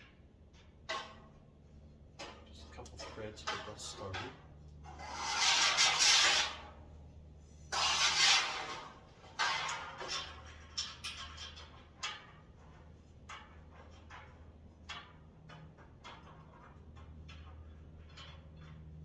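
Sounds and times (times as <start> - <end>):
sliding scrape: 4.8 - 6.9, 7.5 - 12.2.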